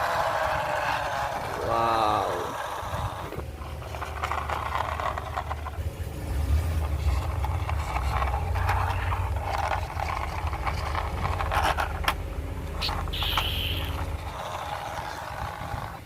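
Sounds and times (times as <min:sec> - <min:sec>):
plastic toy crackling and scraping: 0:00.0 - 0:16.0
steady low rumble: 0:00.1 - 0:16.0.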